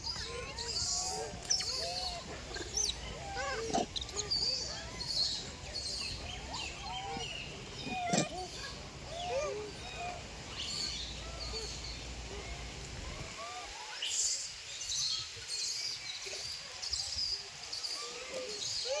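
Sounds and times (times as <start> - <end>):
baby monkey squeaky calls: 0.1 - 10.0.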